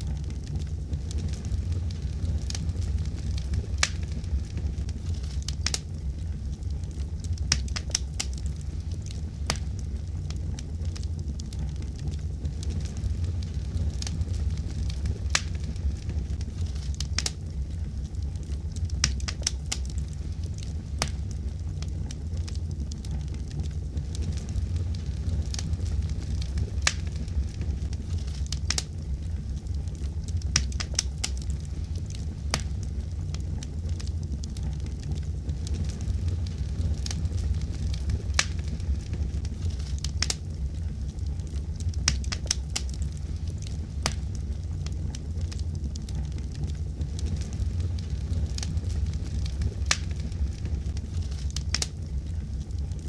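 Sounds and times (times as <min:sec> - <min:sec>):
fire burning rumble: 0:00.0 - 0:53.0
pops and snaps of wood: 0:03.8 - 0:04.1, 0:05.2 - 0:05.9, 0:07.4 - 0:12.2, 0:15.3 - 0:15.6, 0:16.6 - 0:17.4, 0:18.8 - 0:23.6, 0:26.8 - 0:27.2, 0:28.1 - 0:29.0, 0:30.4 - 0:33.4, 0:38.0 - 0:38.7, 0:39.4 - 0:40.5, 0:41.5 - 0:47.4, 0:49.5 - 0:50.2, 0:50.9 - 0:52.0.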